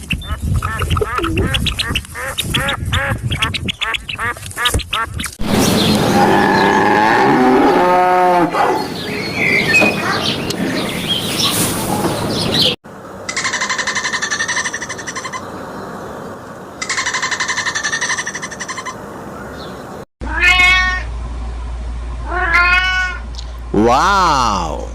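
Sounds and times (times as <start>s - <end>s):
birds chirping: 0.0s - 20.0s
cow mooing: 6.1s - 8.6s.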